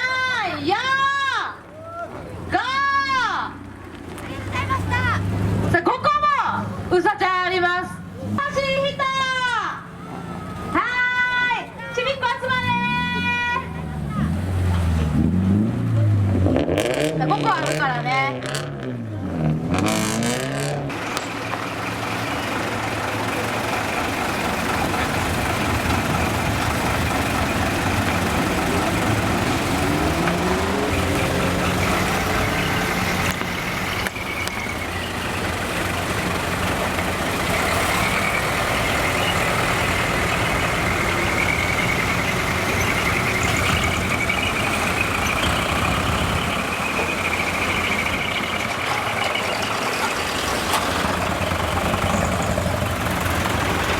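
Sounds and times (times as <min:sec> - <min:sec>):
vehicle engines running: 0:00.0 - 0:53.9
engine revving up: 0:12.6 - 0:53.9.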